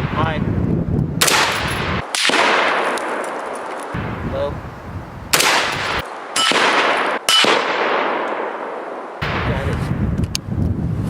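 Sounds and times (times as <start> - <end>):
rifle shots with echo: 1.2 - 4.2, 5.3 - 9.9.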